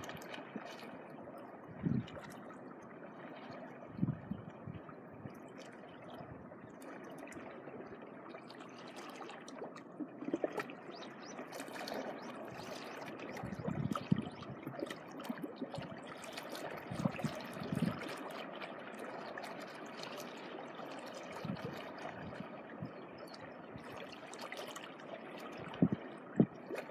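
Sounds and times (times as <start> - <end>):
small water splashes: 0.0 - 26.9
sea water washing over shore: 8.8 - 26.9.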